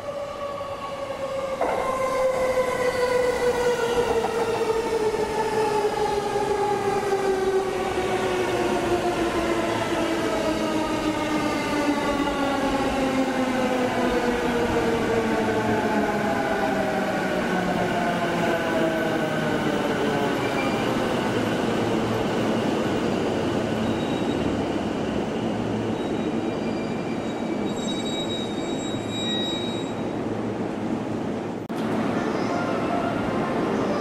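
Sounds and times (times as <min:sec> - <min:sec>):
high squeal: 0:26.0 - 0:30.1.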